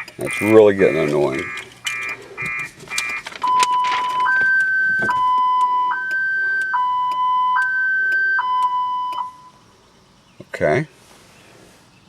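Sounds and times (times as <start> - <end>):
two-tone car alarm siren: 0.0 - 9.6.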